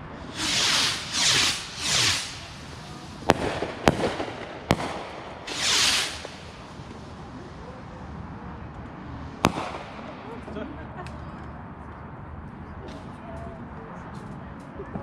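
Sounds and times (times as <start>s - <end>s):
fireworks sharp bangs: 0.2s - 7.3s, 9.4s - 10.8s
firework hissing burst: 0.2s - 7.6s, 9.2s - 10.5s.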